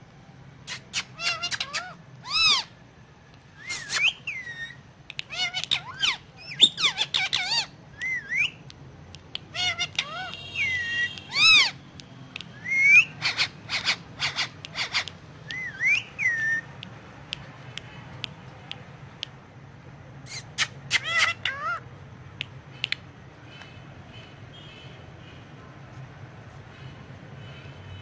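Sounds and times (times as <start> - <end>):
parakeet whistling: 3.6 - 8.6, 9.5 - 11.8, 12.5 - 16.7.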